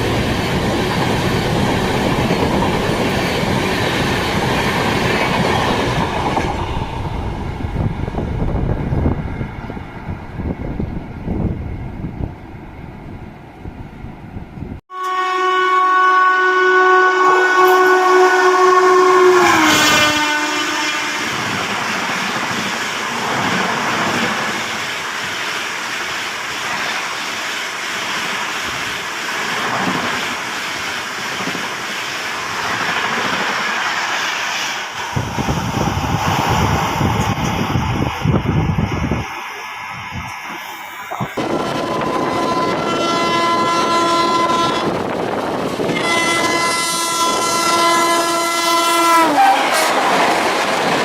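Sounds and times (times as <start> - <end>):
train coaches rushing and clattering: 0.0 - 12.9, 17.4 - 51.0
train horn: 14.9 - 21.6, 41.4 - 45.0, 45.9 - 50.0.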